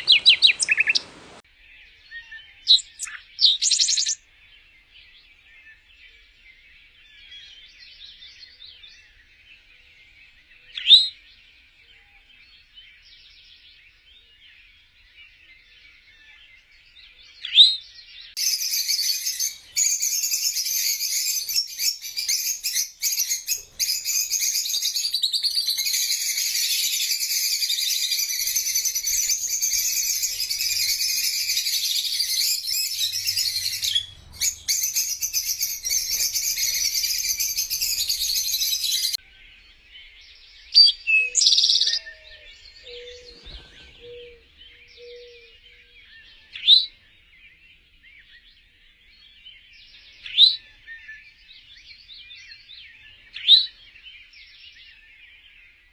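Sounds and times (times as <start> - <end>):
single bird calls: 0.0 - 1.4, 18.4 - 39.2
small birds chirping: 0.0 - 55.9.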